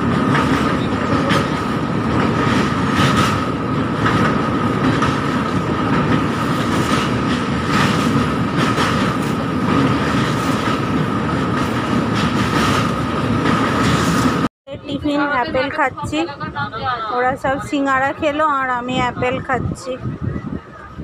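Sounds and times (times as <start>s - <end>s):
train wheel clacks: 0.0s - 14.5s.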